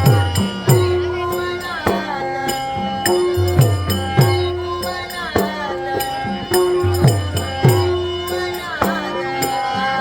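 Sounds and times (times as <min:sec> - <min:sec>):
drum beating: 0:00.0 - 0:01.2, 0:03.1 - 0:04.6
harmonium-like held notes: 0:00.0 - 0:10.0
jingling small percussion: 0:00.0 - 0:10.0.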